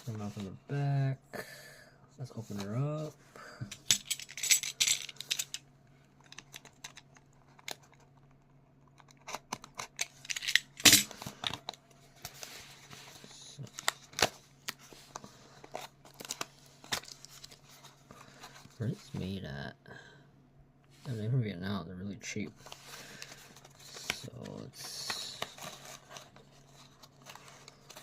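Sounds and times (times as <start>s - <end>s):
rustling and tearing packaging: 9.0s - 19.0s, 22.6s - 28.0s.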